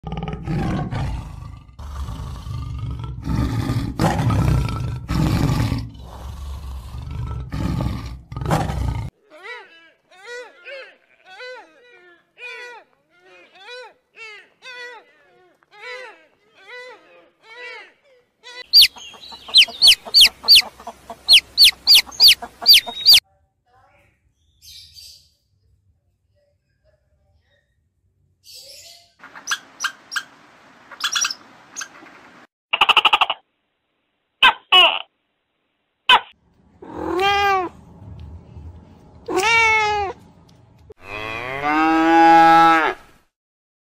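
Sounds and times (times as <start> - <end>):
tiger roaring: 0.0 - 9.1, 36.8 - 37.8
chicks peeping: 18.7 - 23.2.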